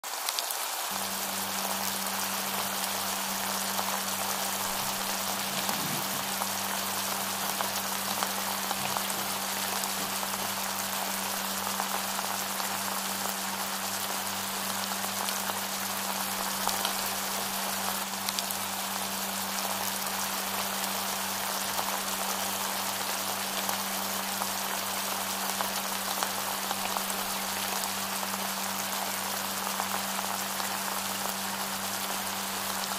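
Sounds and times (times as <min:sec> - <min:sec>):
food sizzling in hot oil: 0:00.1 - 0:32.9
low hum: 0:01.0 - 0:11.2.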